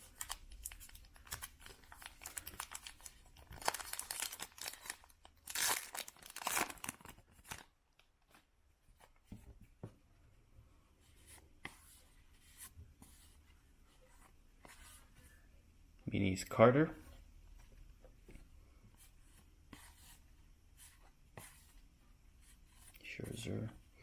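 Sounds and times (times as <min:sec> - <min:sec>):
cards ticking and rustling: 0:00.0 - 0:07.7
wrapper tearing and crinkling: 0:00.2 - 0:07.7.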